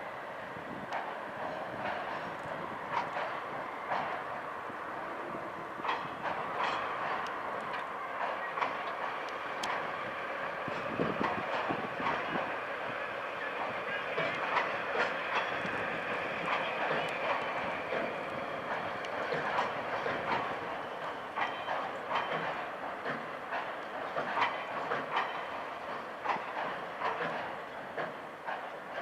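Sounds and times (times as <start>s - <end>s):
freight train passing: 0.0s - 29.0s
wheels clicking over rail joints: 0.8s - 29.0s.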